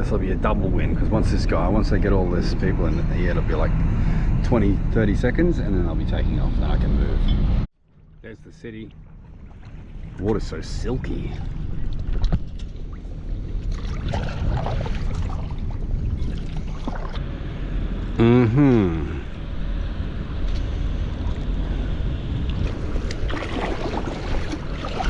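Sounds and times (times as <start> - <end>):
water lapping: 7.9 - 17.2, 20.5 - 25.0
wind buffeting microphone: 9.1 - 17.9
small splashes and knocks: 11.4 - 17.2, 22.5 - 25.0.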